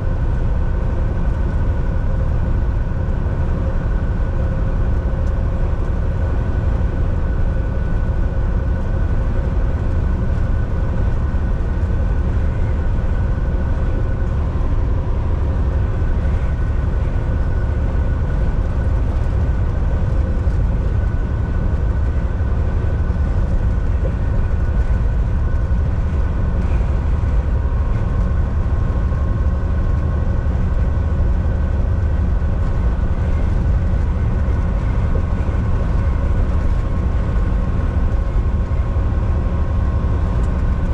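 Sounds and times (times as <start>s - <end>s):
faint steady whine: 0.0s - 40.9s
truck engine and road drone: 0.0s - 40.9s.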